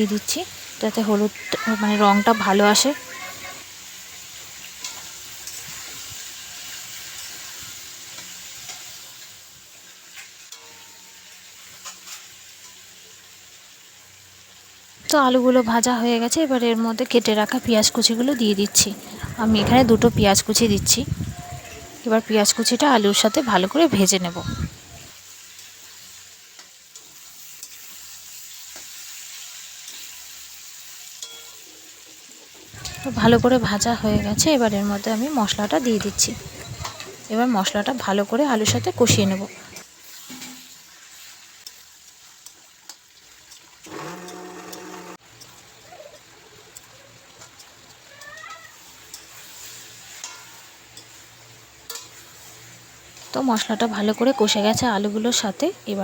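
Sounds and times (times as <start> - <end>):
potatoes sizzling in oil: 0.0 - 56.0
spatula clicking against pan: 51.9 - 52.2.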